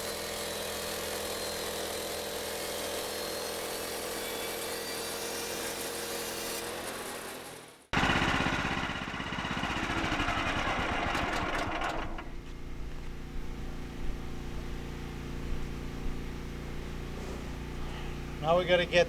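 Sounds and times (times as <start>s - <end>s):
saw blade cutting through log: 0.0s - 7.7s
sawmill engine running: 0.0s - 15.2s.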